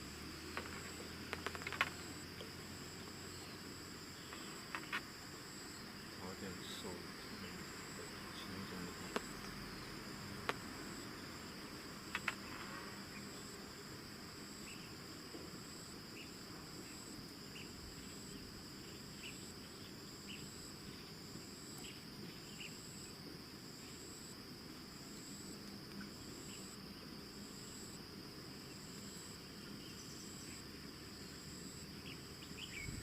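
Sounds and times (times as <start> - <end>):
high pulsing insect chirp: 0.0 - 33.0
insects trilling: 0.0 - 33.0
sharp clicks: 12.1 - 12.4.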